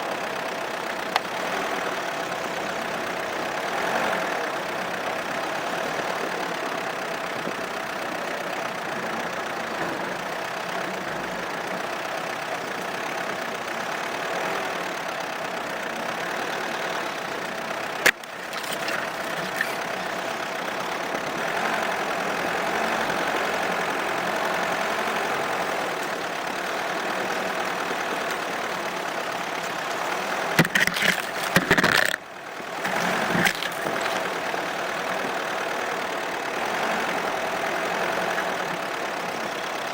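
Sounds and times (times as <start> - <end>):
car engine and road noise: 0.0 - 39.9
sharp knocks and thumps: 30.6 - 32.2.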